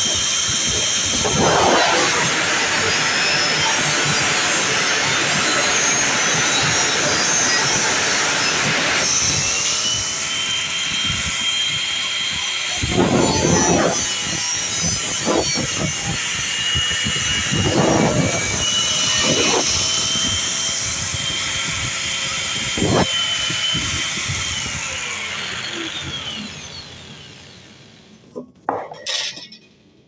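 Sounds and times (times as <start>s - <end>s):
jet aircraft roaring overhead: 0.0s - 26.6s.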